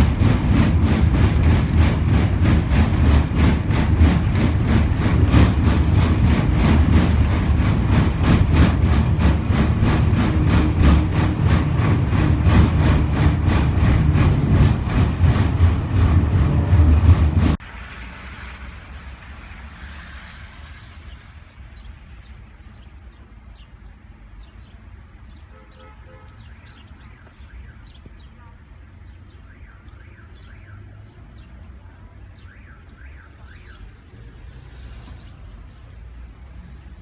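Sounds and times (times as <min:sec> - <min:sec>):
engine ticking: 0:00.0 - 0:17.7
engine running with low rumble: 0:00.0 - 0:21.4.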